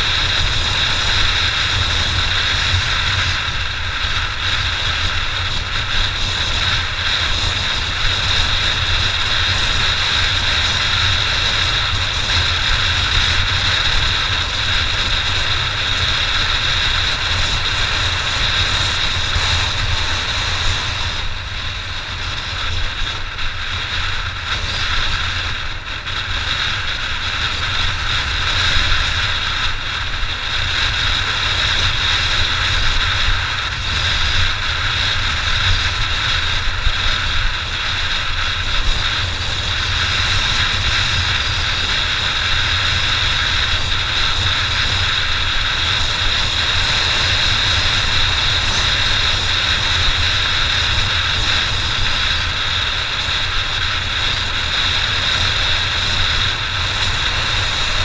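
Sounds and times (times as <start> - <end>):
motorcycle engine running: 0.0 - 58.0
wind buffeting microphone: 0.0 - 58.0.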